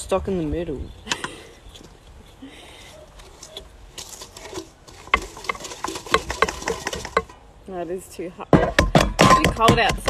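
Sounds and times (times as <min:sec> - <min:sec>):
utensil scraping mixing bowl: 0:03.5 - 0:07.4.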